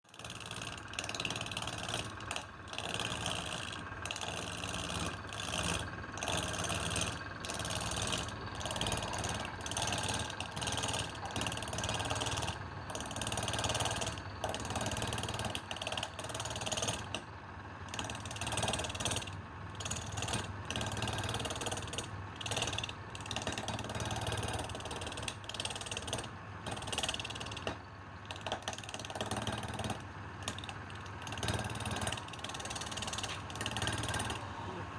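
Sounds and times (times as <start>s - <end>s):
tool scraping spinning wood: 0.3s - 17.2s, 18.0s - 34.5s
wood lathe motor hum: 0.3s - 17.2s, 30.5s - 34.8s.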